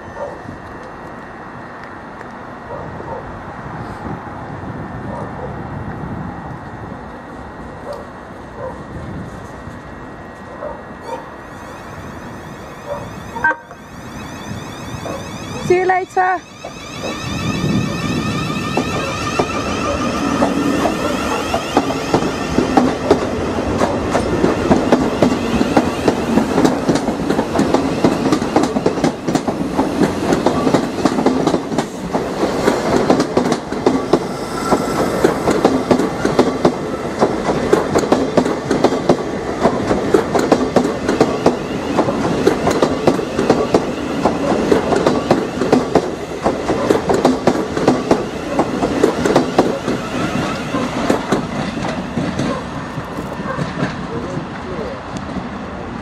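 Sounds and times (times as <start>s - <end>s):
train rumble: 0.0s - 56.0s
train wheels clacking over joints: 18.6s - 54.6s.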